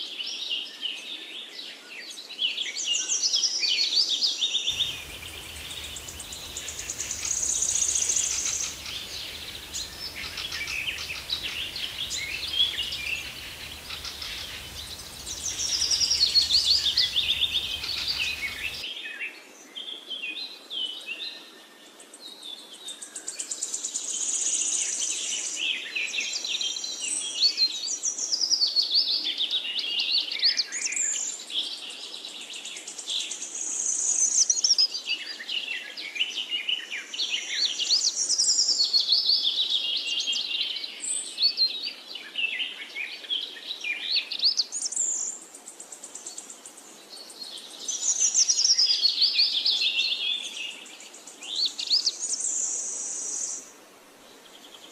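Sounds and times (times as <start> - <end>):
songbirds singing: 4.7 - 18.9.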